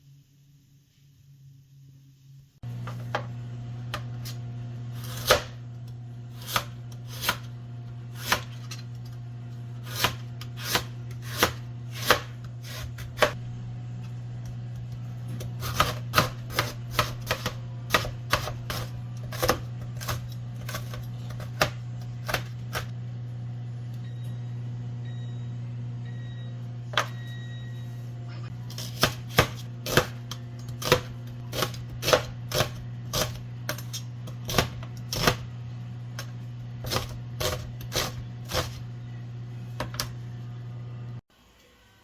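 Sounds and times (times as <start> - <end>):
steady low hum: 0.0 - 41.2
knife chopping on cutting board: 5.0 - 5.6, 6.4 - 7.5, 8.2 - 8.8, 9.8 - 13.4, 15.3 - 22.9, 28.7 - 35.5, 36.2 - 38.8.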